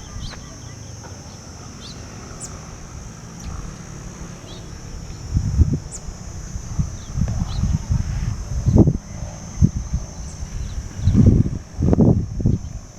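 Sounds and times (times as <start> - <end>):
forest birds chirping: 0.0 - 12.9
steady high drone: 0.0 - 12.9
low rumbling thumps: 2.6 - 12.9.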